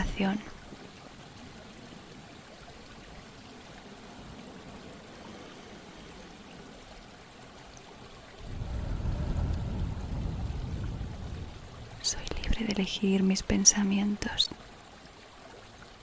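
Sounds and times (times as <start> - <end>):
running water: 0.0 - 16.0
loud low rumble: 8.4 - 12.7.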